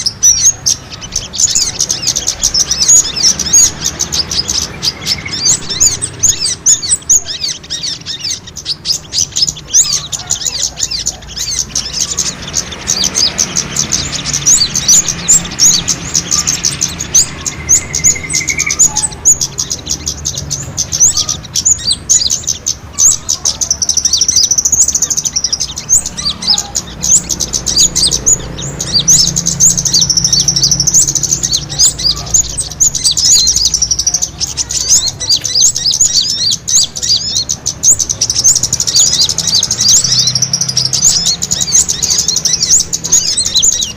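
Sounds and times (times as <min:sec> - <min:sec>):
small birds chirping and twittering: 0:00.0 - 0:43.9.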